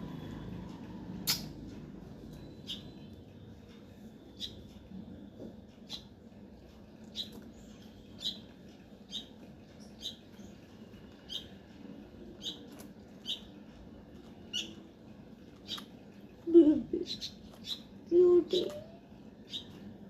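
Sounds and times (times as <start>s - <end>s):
baby bird peeping: 1.2s - 1.6s, 2.3s - 3.2s, 4.2s - 4.9s, 5.8s - 6.2s, 7.0s - 19.9s.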